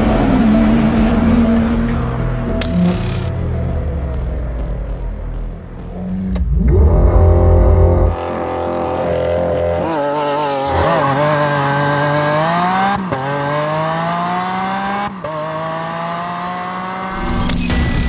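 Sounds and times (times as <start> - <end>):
sports car accelerating hard: 0.0 - 17.4.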